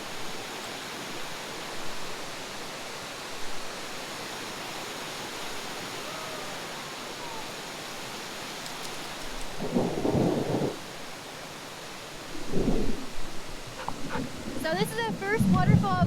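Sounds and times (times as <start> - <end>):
waterfall roaring: 0.0 - 9.6, 13.2 - 16.0.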